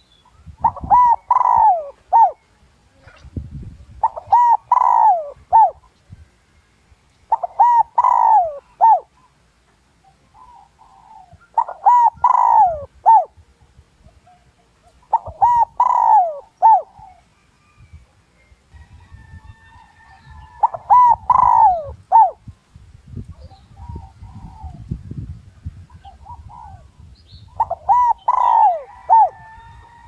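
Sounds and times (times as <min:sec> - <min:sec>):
dove cooing: 0:00.0 - 0:03.2, 0:04.0 - 0:06.0, 0:07.3 - 0:09.4, 0:10.1 - 0:13.4, 0:14.1 - 0:17.8, 0:19.4 - 0:22.5, 0:23.3 - 0:25.0, 0:25.7 - 0:30.0.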